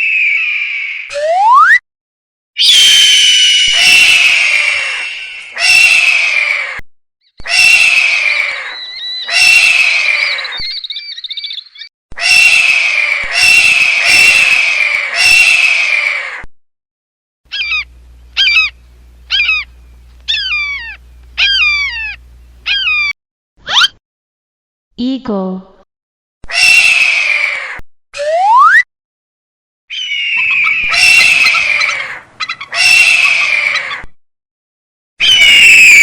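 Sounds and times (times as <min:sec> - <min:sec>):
falcon screaming calls: 0:00.0 - 0:01.1, 0:02.6 - 0:06.8, 0:07.4 - 0:16.5, 0:17.5 - 0:19.7, 0:20.3 - 0:23.9, 0:26.4 - 0:27.8, 0:29.9 - 0:34.1, 0:35.2 - 0:36.0
low steady hum: 0:17.5 - 0:23.1.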